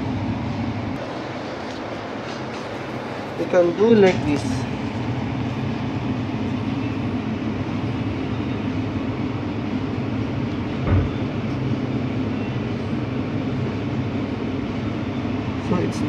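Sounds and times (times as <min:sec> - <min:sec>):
low machine hum: 0:00.0 - 0:16.0
dull thump: 0:10.8 - 0:11.2.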